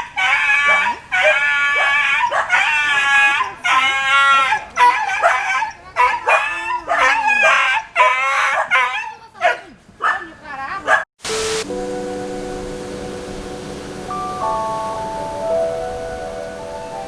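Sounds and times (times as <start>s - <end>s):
animal crying out: 0.1s - 5.0s.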